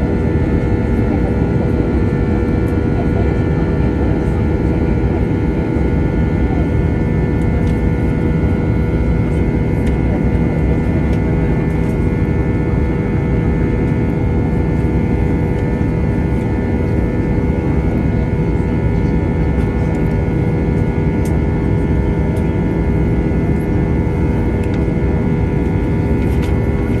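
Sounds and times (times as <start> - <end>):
airplane cabin drone: 0.0 - 27.0.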